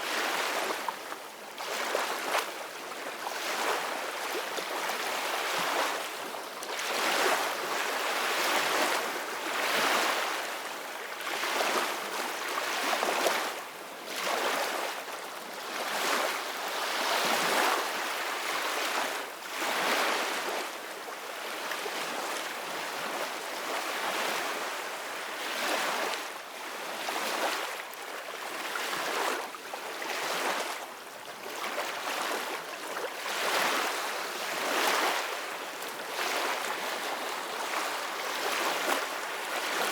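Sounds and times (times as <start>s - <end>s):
ocean waves washing onto beach: 21.6s - 39.9s.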